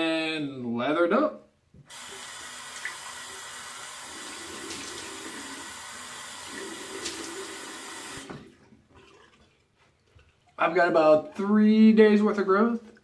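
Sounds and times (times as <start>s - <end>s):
tap water running into sink: 1.9s - 9.6s.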